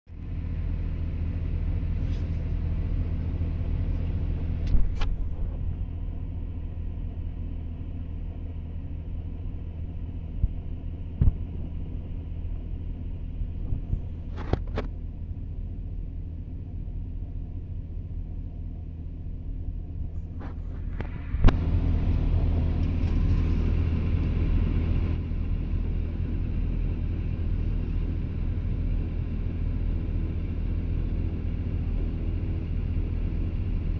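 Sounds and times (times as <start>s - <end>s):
excavator diesel engine running: 0.1s - 33.9s
sharp knocks and clunks: 11.2s - 11.6s.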